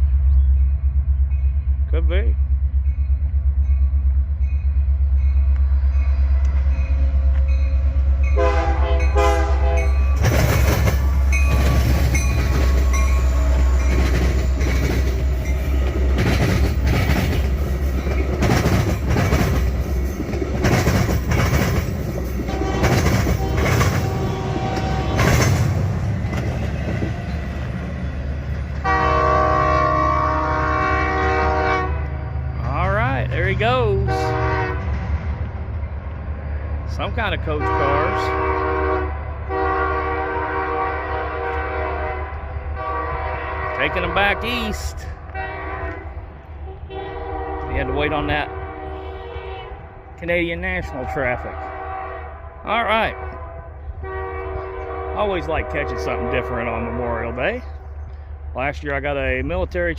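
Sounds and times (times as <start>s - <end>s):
diesel locomotives rumbling: 0.0s - 59.9s
multi-chime air horn: 8.4s - 10.2s
wheels clattering over rail joints: 9.8s - 28.9s.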